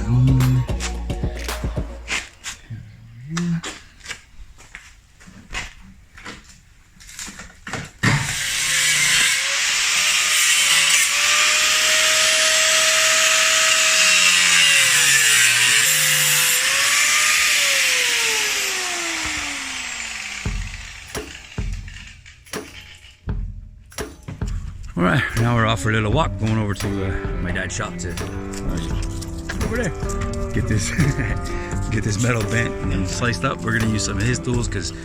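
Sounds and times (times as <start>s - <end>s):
power tool cutting sheet metal: 8.0s - 23.2s, 27.9s - 35.0s
motor winding down whine: 10.9s - 22.1s.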